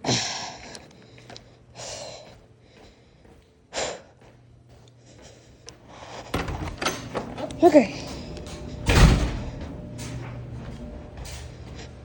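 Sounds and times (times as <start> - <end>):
faint hum: 0.0 - 12.0
person breathing close to microphone: 4.8 - 6.4.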